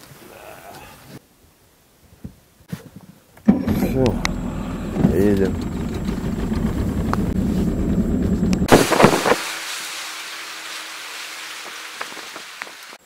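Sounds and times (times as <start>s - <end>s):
engine rumbling: 3.4s - 9.4s
steady hiss: 8.7s - 13.0s.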